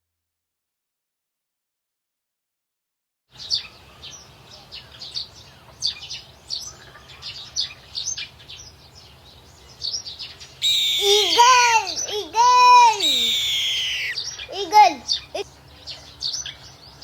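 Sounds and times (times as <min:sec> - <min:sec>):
bird chirping: 0:03.4 - 0:17.0.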